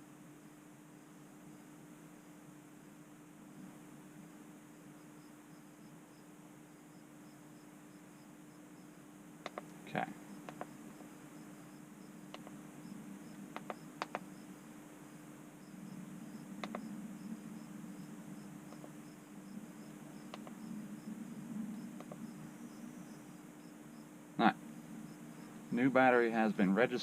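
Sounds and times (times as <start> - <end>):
low steady hum: 0.0 - 27.0
light clicks: 9.4 - 9.8, 13.6 - 14.3, 20.3 - 20.6, 22.0 - 22.2.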